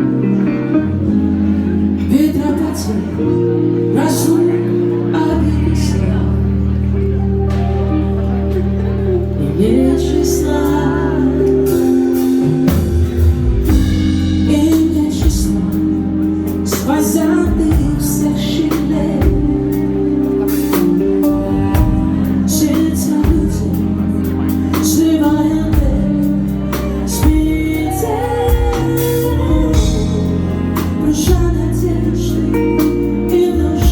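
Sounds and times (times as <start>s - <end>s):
keyboard and bass chords: 0.0s - 33.9s
woman singing: 2.0s - 6.8s, 9.3s - 33.9s
drums: 7.2s - 33.9s.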